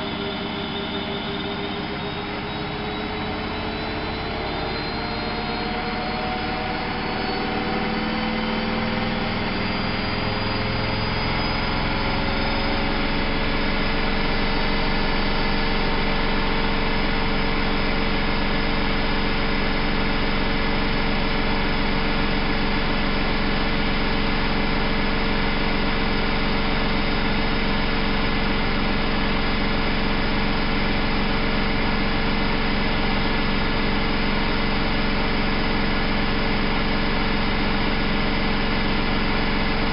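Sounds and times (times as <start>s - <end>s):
washing machine spinning: 0.0s - 5.4s, 26.0s - 39.9s.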